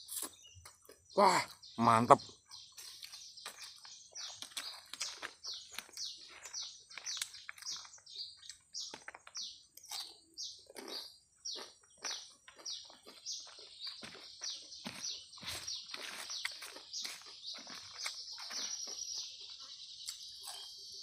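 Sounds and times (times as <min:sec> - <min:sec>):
wet chewing and lip-smacking: 0:02.7 - 0:14.7, 0:15.4 - 0:19.1.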